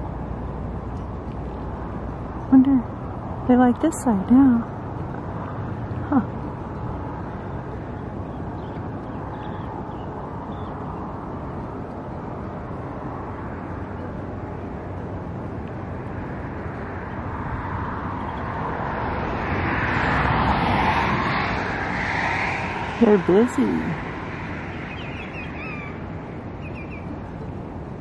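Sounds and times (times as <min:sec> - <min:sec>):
low outdoor rumble: 0:00.0 - 0:28.0
passing engine: 0:00.0 - 0:28.0.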